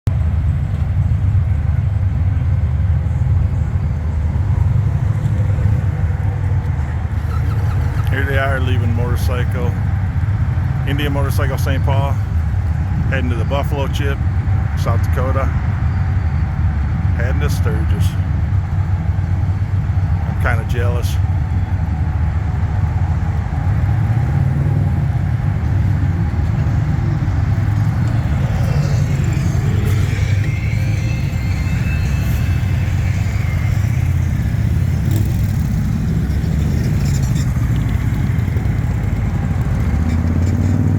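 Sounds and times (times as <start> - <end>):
motorcycle engines rumbling: 0.1 - 40.9.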